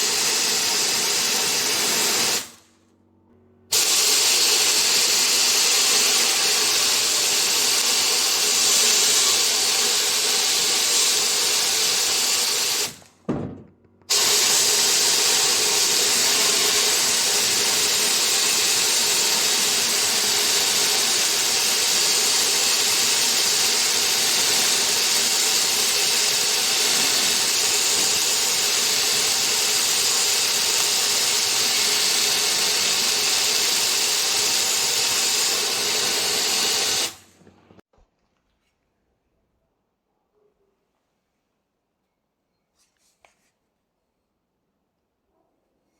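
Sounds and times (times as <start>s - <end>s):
hissing power tool: 0.0s - 2.6s, 3.7s - 13.1s, 14.1s - 37.3s.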